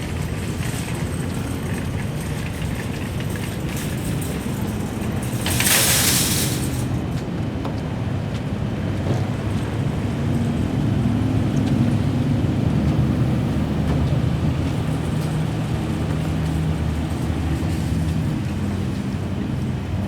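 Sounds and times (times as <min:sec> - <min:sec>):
vehicle engine idling: 0:00.0 - 0:05.8.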